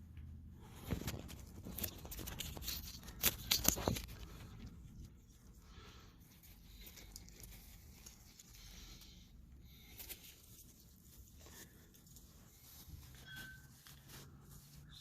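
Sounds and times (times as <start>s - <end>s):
faint rustling and handling: 0.0s - 15.0s.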